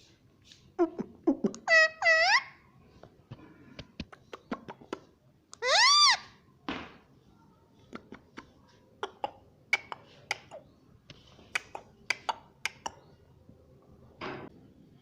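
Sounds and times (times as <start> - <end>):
parrot clicks and chirps: 11.5 - 13.0.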